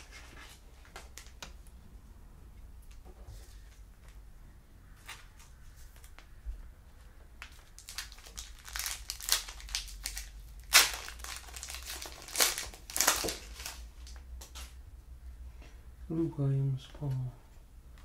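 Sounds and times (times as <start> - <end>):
foil wrapper crinkling and tearing: 7.6 - 14.2.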